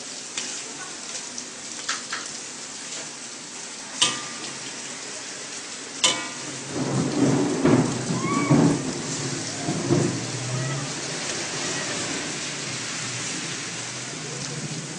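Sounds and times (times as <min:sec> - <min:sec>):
noodles sizzling in a wok: 0:00.0 - 0:06.8
metal spatula clanking on pan: 0:04.0 - 0:04.6, 0:06.0 - 0:06.6.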